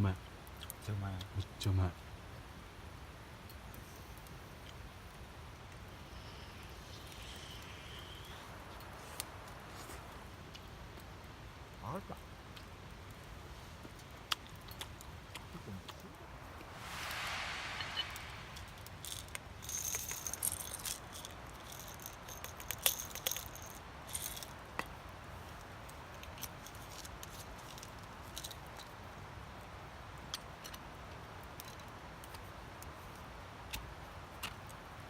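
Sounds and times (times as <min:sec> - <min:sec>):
steady background hiss: 0:00.0 - 0:35.0
small hard objects clicking: 0:19.0 - 0:24.5.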